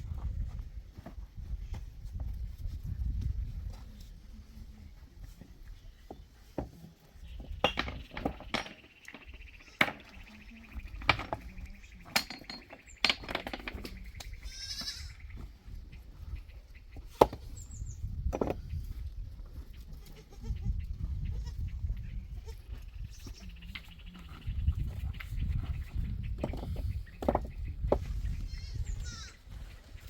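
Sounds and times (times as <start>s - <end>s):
knocks and clatter: 7.4s - 14.2s
goats bleating: 14.5s - 15.2s, 19.9s - 20.7s.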